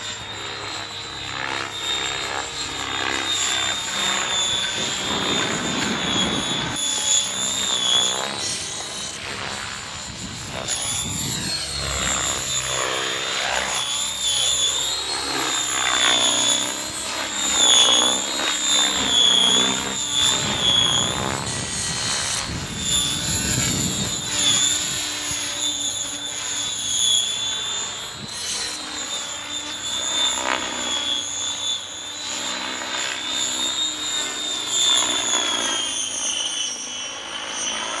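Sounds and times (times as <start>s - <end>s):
rc helicopter motor whine: 0.0s - 38.0s.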